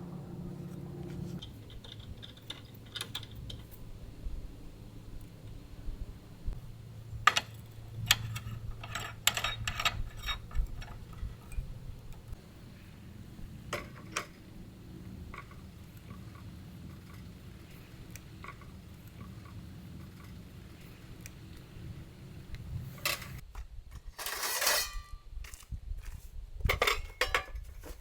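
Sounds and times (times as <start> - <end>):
low steady hum: 0.0 - 25.2
sharp clicks and light knocks: 1.4 - 3.8.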